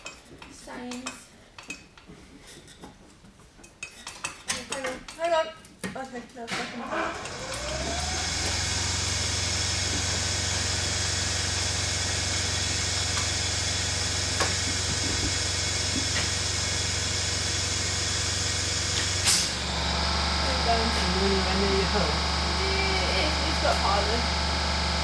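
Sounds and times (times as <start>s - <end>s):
motor humming: 6.9s - 25.0s.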